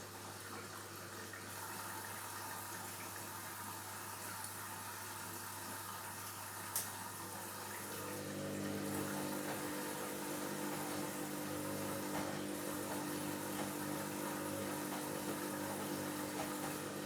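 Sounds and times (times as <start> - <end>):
washing machine filling with water: 0.0 - 17.0
washing machine drum motor hum: 7.0 - 17.0.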